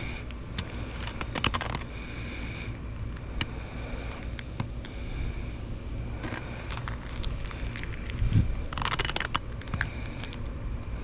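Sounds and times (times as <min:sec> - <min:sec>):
crackling: 0:00.0 - 0:11.0
steady low rumble: 0:00.0 - 0:11.0
clicks and scrapes on shingle roof: 0:06.2 - 0:10.4.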